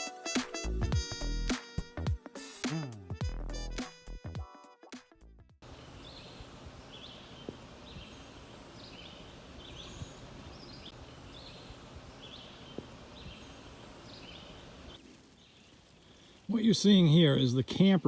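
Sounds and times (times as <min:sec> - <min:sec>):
steady background hiss: 0:05.6 - 0:18.0
small bird chirping: 0:05.7 - 0:16.5.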